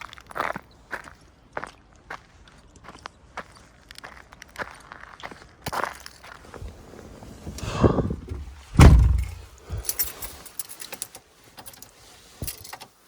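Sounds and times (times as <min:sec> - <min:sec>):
truck door shutting thump: 0:07.4 - 0:09.5
rustle: 0:08.5 - 0:13.0
keys jingling: 0:08.8 - 0:12.8.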